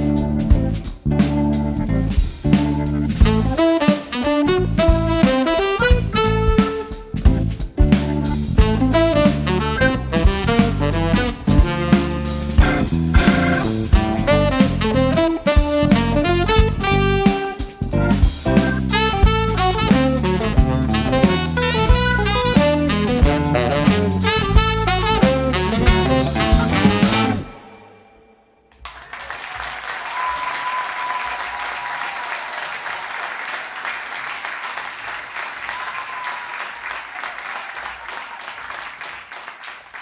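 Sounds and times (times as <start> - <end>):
jazz-rock band playing: 0.0 - 28.0
audience applause: 28.8 - 40.0.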